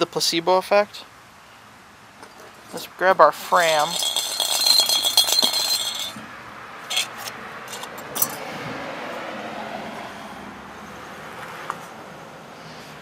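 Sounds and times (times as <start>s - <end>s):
steady background noise: 0.0s - 13.0s
metal parts clinking: 3.6s - 6.2s, 6.9s - 8.4s.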